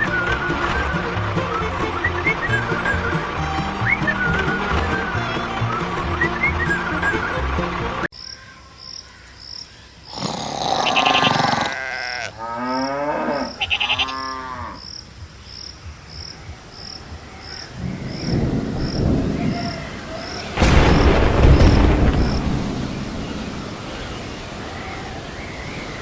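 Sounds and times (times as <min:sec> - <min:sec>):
drawn-out animal calls: 0:00.0 - 0:08.1, 0:10.6 - 0:14.8.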